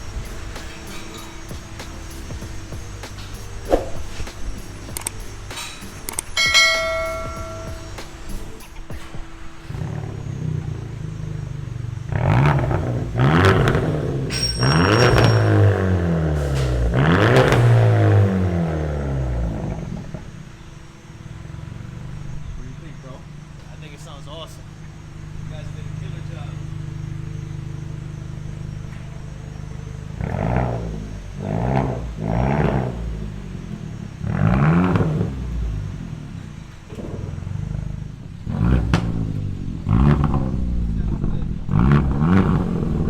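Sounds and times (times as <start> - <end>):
car engine revving then idling: 0.0 - 43.0.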